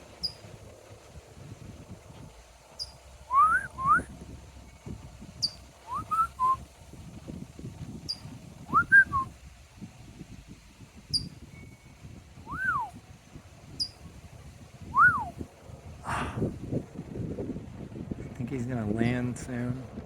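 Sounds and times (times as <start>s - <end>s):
songbird chirping: 0.1s - 0.5s, 2.7s - 4.0s, 5.4s - 6.6s, 11.1s - 12.9s, 13.8s - 14.0s
person whistling: 3.3s - 4.1s, 5.9s - 6.6s, 8.7s - 9.3s, 12.5s - 12.9s, 15.0s - 15.3s.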